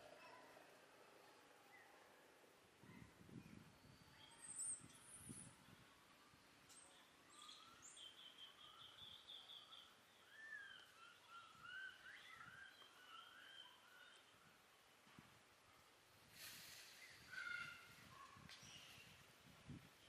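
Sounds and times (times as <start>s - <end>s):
faint bird calls: 16.4s - 19.1s.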